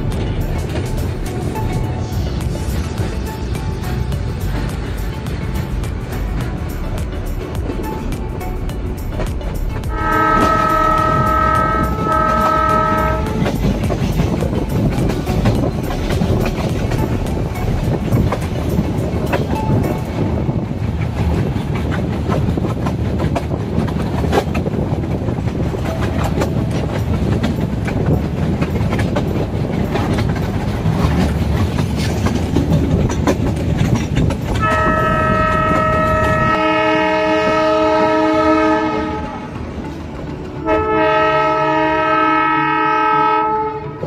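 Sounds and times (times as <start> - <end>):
train wheels rumbling on track: 0.0 - 44.0
locomotive horn blast: 9.9 - 13.6, 34.6 - 39.6, 40.6 - 44.0.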